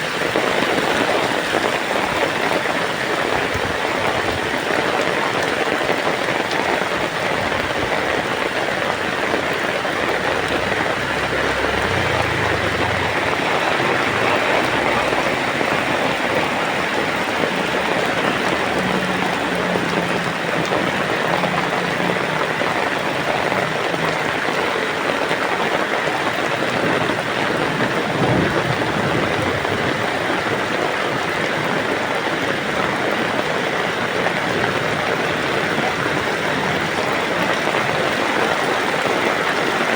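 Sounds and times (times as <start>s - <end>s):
heavy rain falling: 0.0s - 39.9s
low rumble: 7.8s - 20.2s.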